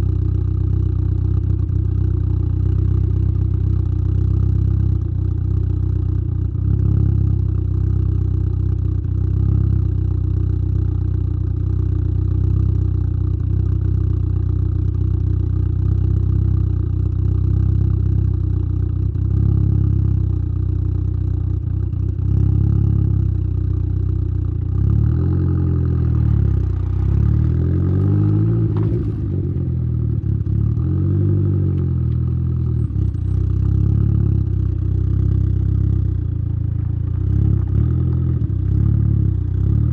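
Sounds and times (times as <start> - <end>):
car exhaust while driving: 0.0 - 39.9.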